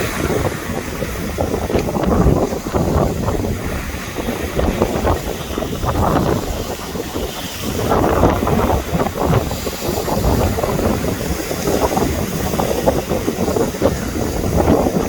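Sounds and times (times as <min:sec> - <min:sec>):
sea waves breaking: 0:00.0 - 0:15.0
wind buffeting microphone: 0:00.0 - 0:15.0.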